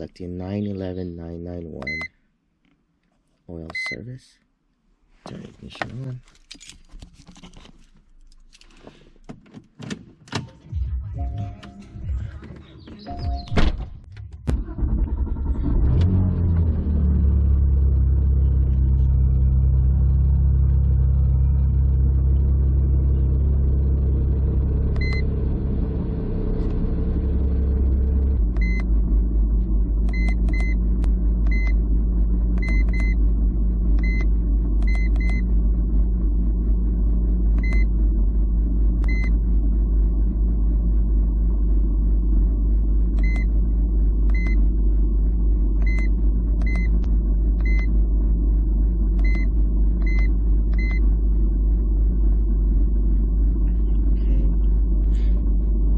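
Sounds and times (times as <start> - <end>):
car engine idling: 14.5 - 55.9.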